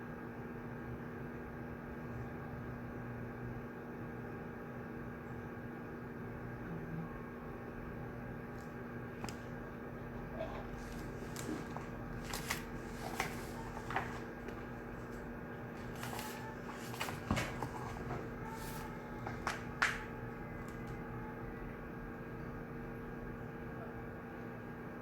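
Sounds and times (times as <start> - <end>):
ventilation hum: 0.0 - 25.0
paper rustling: 8.6 - 9.5, 10.4 - 21.0.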